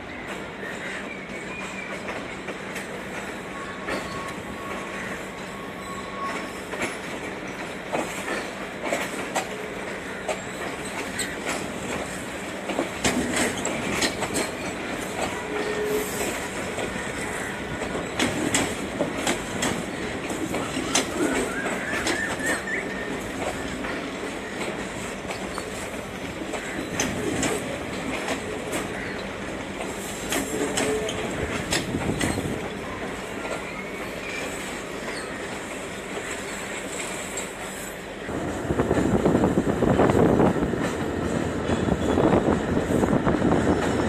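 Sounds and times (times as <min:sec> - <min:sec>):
diesel locomotive approaching: 0:00.0 - 0:44.0
train wheels clacking over rail joints: 0:06.2 - 0:37.7.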